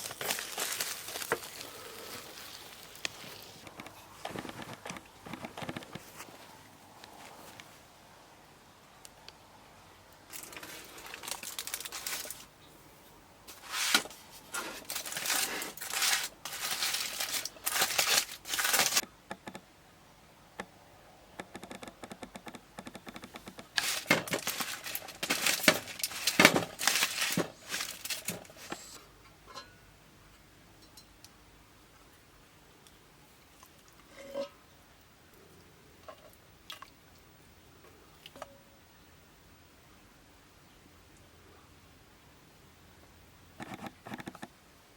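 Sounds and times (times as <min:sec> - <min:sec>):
rustling and crinkling: 0:00.0 - 0:07.9, 0:10.3 - 0:19.0, 0:23.0 - 0:29.0.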